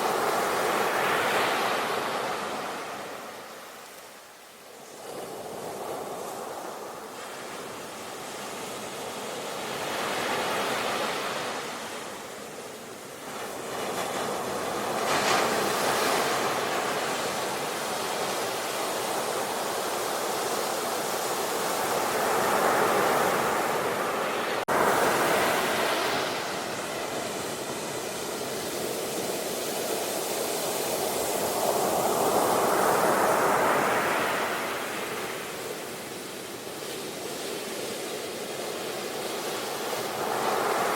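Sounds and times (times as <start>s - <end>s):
ocean waves breaking: 13.1s - 36.2s, 38.7s - 40.9s.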